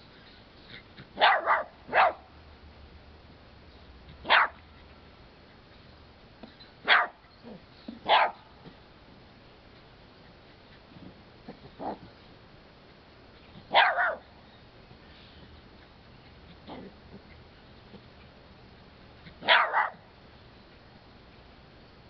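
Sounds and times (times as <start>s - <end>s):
small dog barking: 1.2s - 2.3s, 4.2s - 4.6s, 6.8s - 8.5s, 11.5s - 12.1s, 13.6s - 14.3s, 19.3s - 20.1s.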